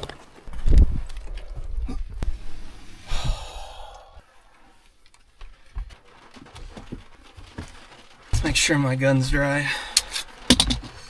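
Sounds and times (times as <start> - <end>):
person sighing: 2.9 - 4.2, 9.7 - 10.2
handling bumps: 9.9 - 11.0
sharp clicks: 10.0 - 10.9.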